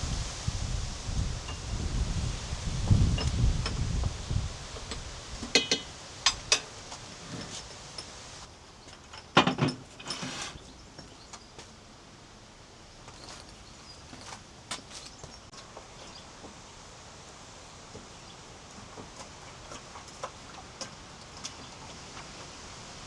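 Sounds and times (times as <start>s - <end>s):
wind rumble on microphone: 0.0s - 7.6s.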